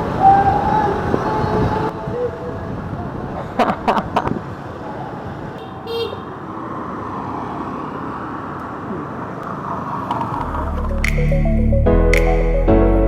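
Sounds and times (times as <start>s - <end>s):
engine and traffic rumble: 1.9s - 12.0s.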